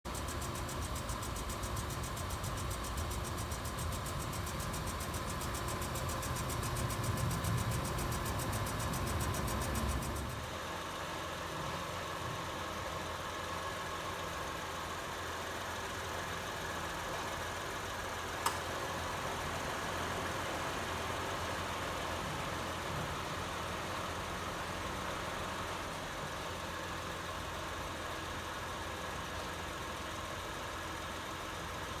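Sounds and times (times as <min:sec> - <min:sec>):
fast high ticking: 0:00.1 - 0:10.4
car engine idling: 0:00.1 - 0:32.0
sharp click: 0:18.4 - 0:18.7.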